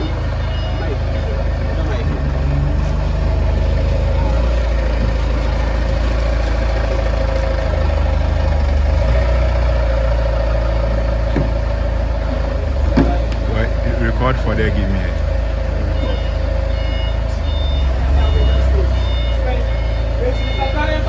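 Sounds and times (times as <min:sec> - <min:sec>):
heavy vehicle engine running: 0:00.0 - 0:21.0.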